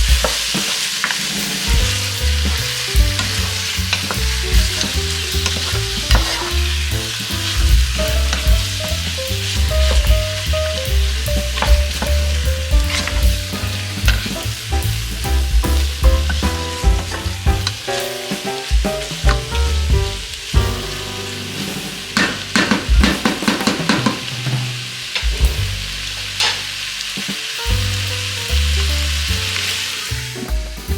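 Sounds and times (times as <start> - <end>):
meat sizzling in a pan: 0.0 - 7.9, 20.2 - 30.2
background music with bass line: 1.7 - 27.0, 27.6 - 30.9.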